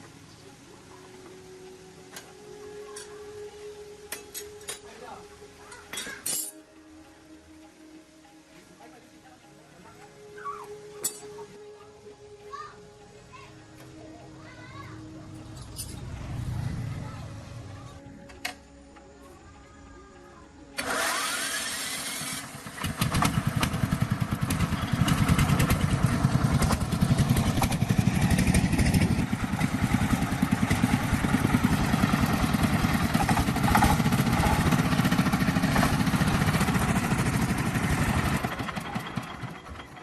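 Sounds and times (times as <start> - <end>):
engine running: 13.7 - 19.1, 20.8 - 40.0
engine cranking whine: 20.6 - 40.0.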